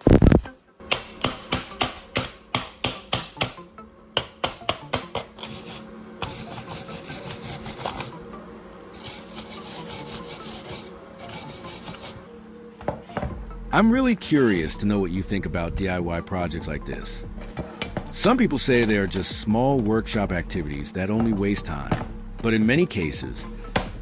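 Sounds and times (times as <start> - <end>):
hand tool scraping: 4.2 - 8.2, 8.8 - 12.3.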